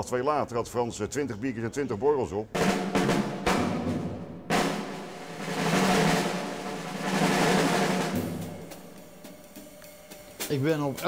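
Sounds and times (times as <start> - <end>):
drum roll: 2.6 - 11.0.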